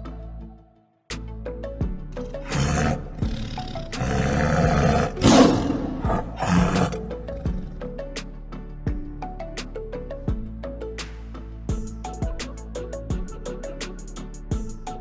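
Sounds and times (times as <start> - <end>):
background music with steady beat: 0.0 - 15.0
tiger roaring and growling: 2.4 - 7.9.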